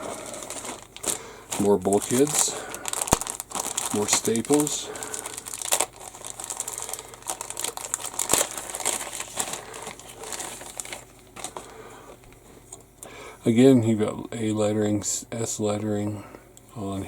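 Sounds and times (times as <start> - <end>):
plastic bag crinkling: 0.0 - 12.3.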